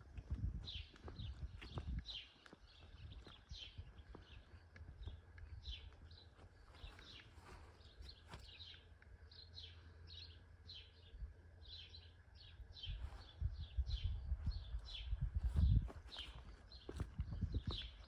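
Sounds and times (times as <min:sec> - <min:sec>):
low steady rumble: 0:00.0 - 0:18.0
small bird chirping: 0:00.3 - 0:18.0
footsteps: 0:05.9 - 0:08.5.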